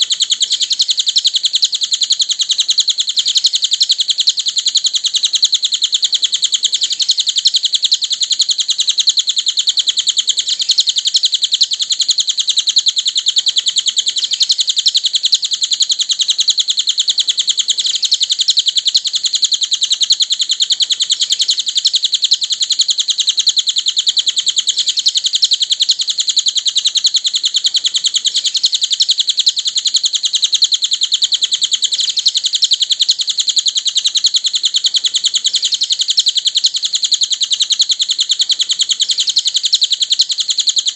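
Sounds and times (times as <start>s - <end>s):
bird chirping trill: 0.0s - 40.9s.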